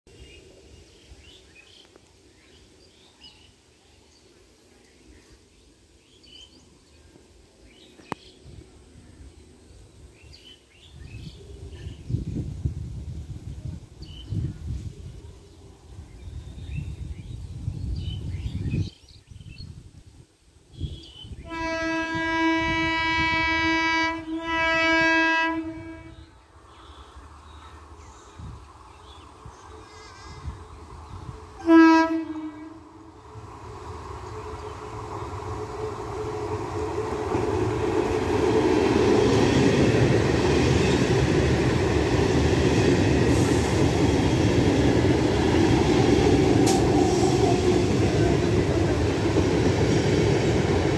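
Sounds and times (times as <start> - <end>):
train horn blasts: 21.4 - 26.4, 31.6 - 33.2
train passing: 21.4 - 50.9.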